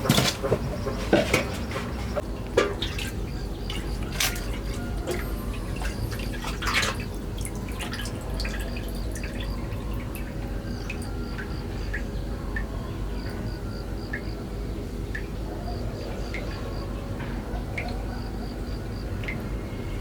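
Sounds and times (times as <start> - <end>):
liquid dripping and trickling: 0.0 - 14.3
low background hum: 0.0 - 20.0.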